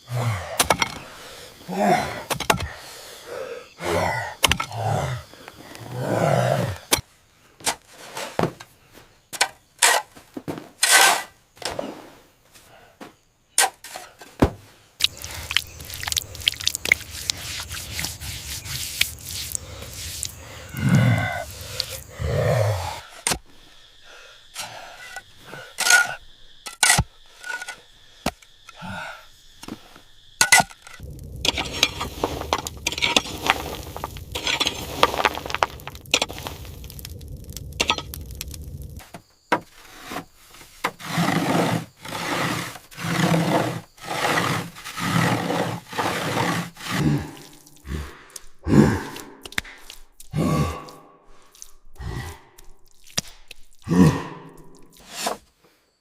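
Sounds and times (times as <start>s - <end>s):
tools scraping earth and stone: 0.1s - 2.8s, 4.0s - 5.0s, 6.8s - 8.7s, 9.3s - 11.9s, 13.5s - 14.4s, 15.0s - 22.1s, 23.0s - 23.4s, 24.5s - 28.8s, 30.4s - 47.8s, 54.7s - 55.6s.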